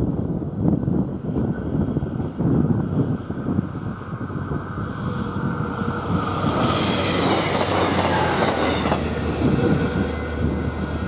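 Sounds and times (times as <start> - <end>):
diesel train passing: 0.0 - 11.0
wheels clattering on rails: 5.3 - 10.2.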